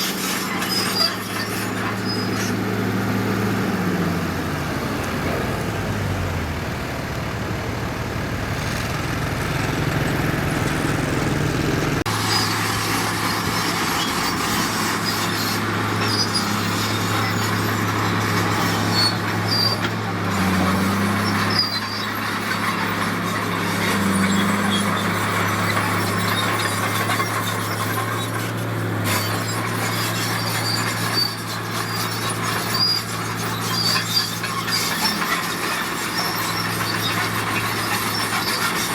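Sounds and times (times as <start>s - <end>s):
high-pitched squeaks: 0.0s - 2.6s, 29.1s - 38.9s
diesel machinery running: 0.0s - 38.9s.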